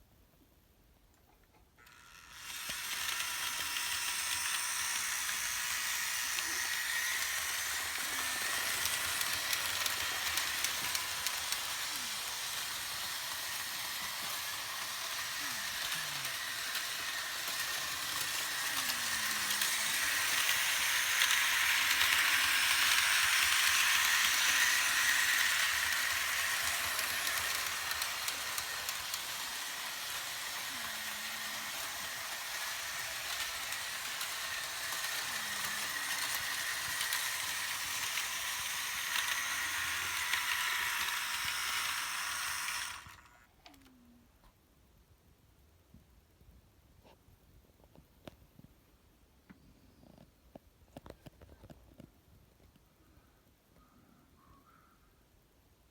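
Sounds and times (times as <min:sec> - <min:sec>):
model train rolling on metal track: 0:01.8 - 0:43.4.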